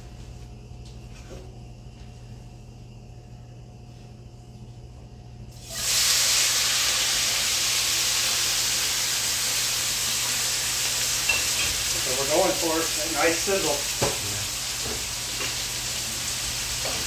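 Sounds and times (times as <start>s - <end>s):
potatoes sizzling in hot oil: 5.6s - 17.0s.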